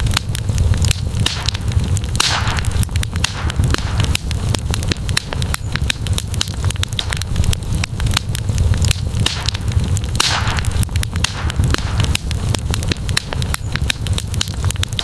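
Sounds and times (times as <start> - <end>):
campfire crackling and popping: 0.0 - 15.0
low rumble: 0.0 - 15.0.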